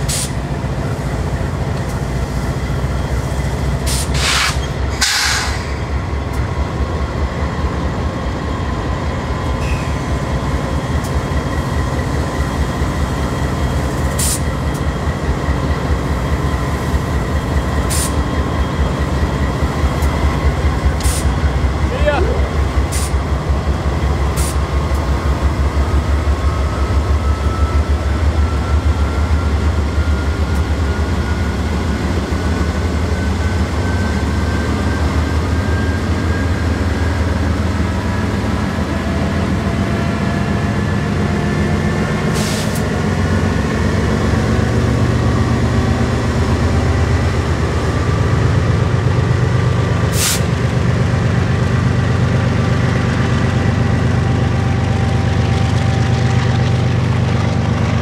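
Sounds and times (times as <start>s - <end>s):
diesel locomotive rumbling: 0.0s - 58.0s.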